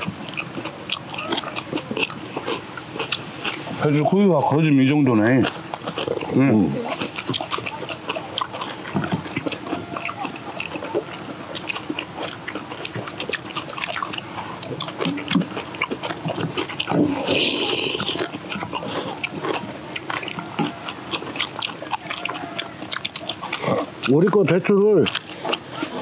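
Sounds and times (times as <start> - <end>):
chewing and crunching: 0.0 - 26.0
wet mouth clicks and smacks: 7.0 - 24.3.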